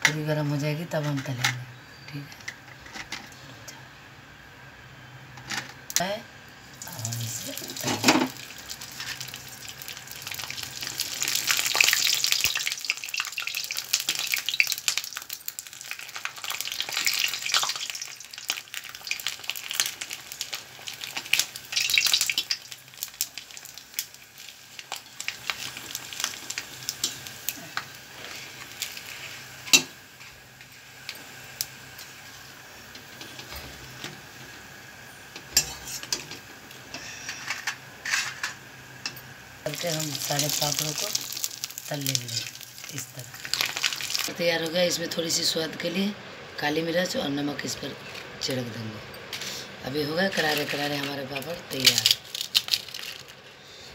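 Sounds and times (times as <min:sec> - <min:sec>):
papad sizzling in hot oil: 0:06.0 - 0:46.0, 0:47.0 - 0:53.7
metal spoon scraping pan: 0:35.5 - 0:36.2.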